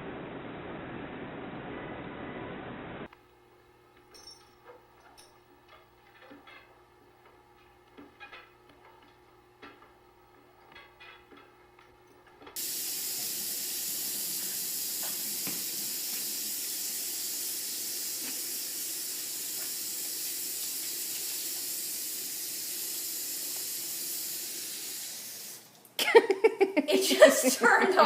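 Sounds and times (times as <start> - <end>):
tap water running into sink: 12.6 - 25.7.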